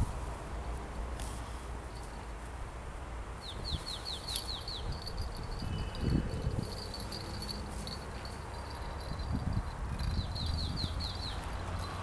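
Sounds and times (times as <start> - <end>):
small bird singing: 3.4 - 12.0.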